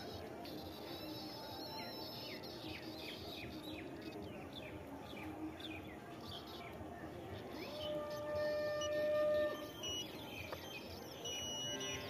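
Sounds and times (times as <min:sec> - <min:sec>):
outdoor background noise: 0:00.0 - 0:12.0
bird chirps sliding downward: 0:07.4 - 0:12.0.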